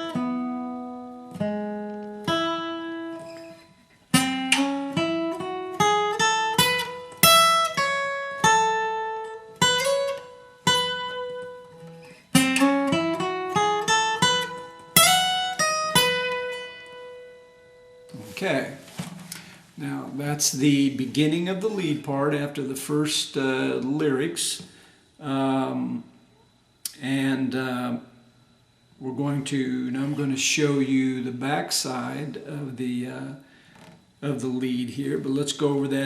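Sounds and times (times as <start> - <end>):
acoustic guitar picking: 0.0 - 27.9.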